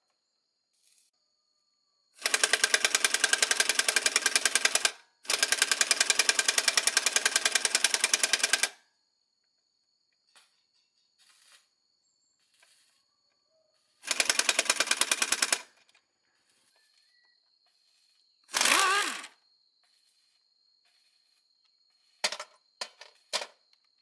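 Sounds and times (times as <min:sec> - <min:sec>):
power tool clattering: 0:14.1 - 0:15.7, 0:18.5 - 0:19.3.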